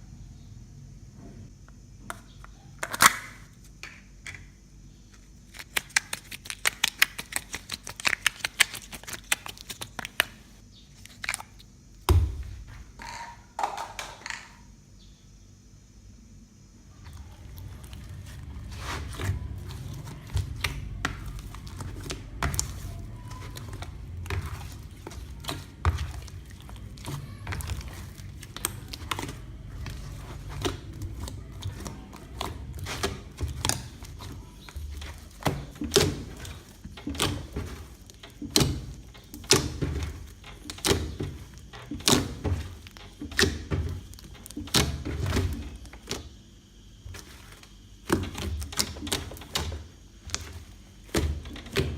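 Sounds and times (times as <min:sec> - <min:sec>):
hands squishing slime: 0:05.4 - 0:10.5, 0:17.0 - 0:46.3, 0:47.1 - 0:51.9.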